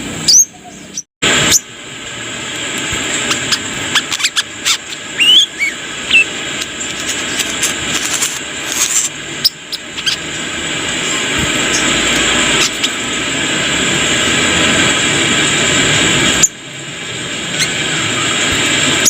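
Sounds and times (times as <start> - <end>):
sunbird chirping: 0.0 - 1.7, 3.2 - 7.4, 9.4 - 13.1
rising whistled bird notes: 5.1 - 6.3.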